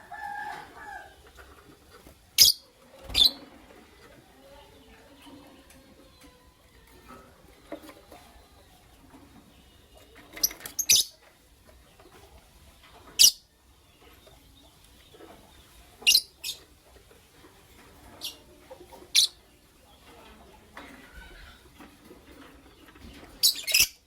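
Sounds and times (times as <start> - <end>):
lovebirds chirping: 2.3 - 3.6, 9.4 - 17.1, 18.0 - 20.4, 22.3 - 24.0.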